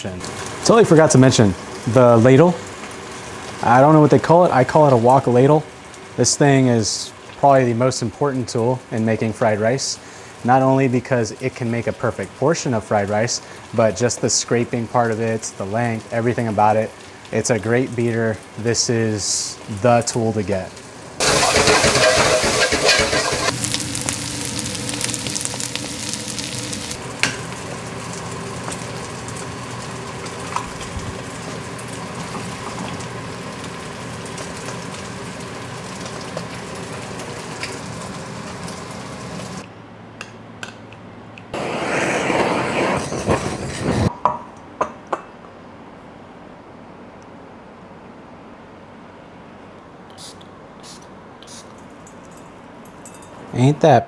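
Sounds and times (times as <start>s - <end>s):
rice sizzling in a wok: 0.2s - 7.4s, 20.7s - 39.6s
egg frying in oil: 0.2s - 39.6s
metal ladle scraping wok: 21.2s - 23.6s
metal clinks: 52.0s - 53.4s.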